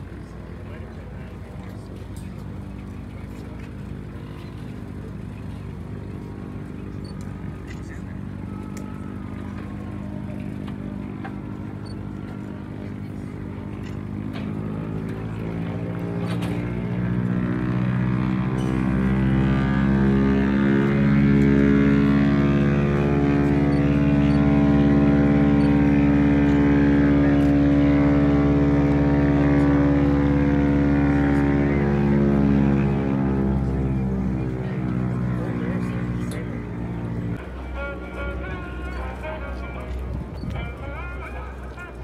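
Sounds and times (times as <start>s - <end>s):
aircraft engine with propeller drone: 0.0s - 42.0s.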